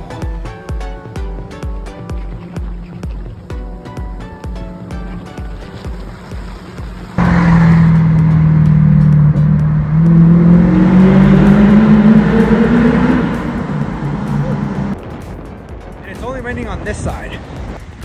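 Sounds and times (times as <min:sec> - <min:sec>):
road and wind noise: 0:00.0 - 0:18.0
car engine accelerating: 0:04.2 - 0:15.0.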